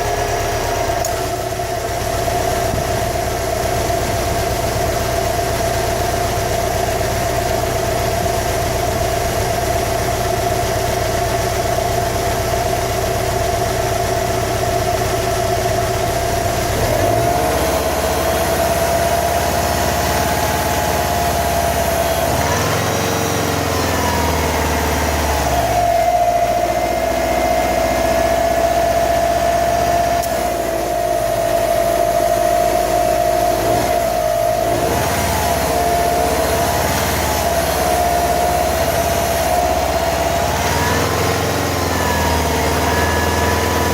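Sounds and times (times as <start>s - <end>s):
car engine idling: 0.0s - 43.9s.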